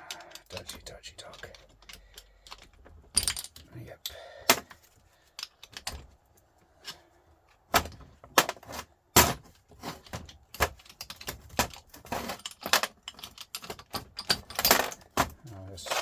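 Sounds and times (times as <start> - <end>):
metal parts knocking and rattling: 0.0 - 16.0.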